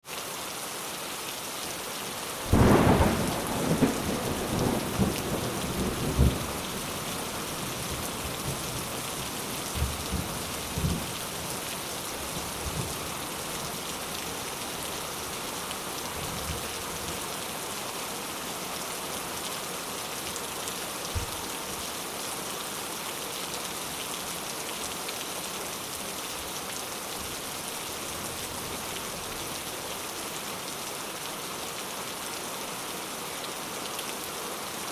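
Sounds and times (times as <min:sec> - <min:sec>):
rain on a thatched roof: 0:00.0 - 0:34.9
thunder rumbling: 0:02.5 - 0:08.7.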